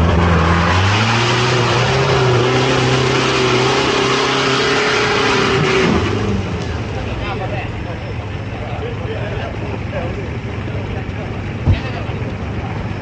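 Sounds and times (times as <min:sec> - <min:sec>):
engine revving under load: 0:00.0 - 0:07.3.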